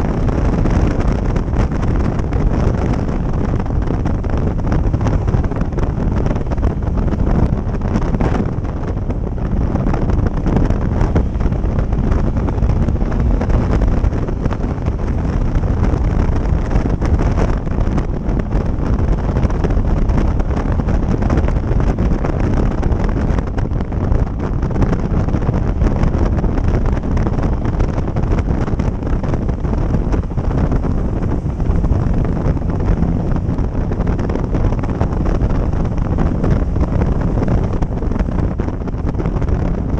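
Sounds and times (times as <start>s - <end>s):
motorcycle running: 0.0s - 39.9s
wind buffeting microphone: 0.0s - 39.9s.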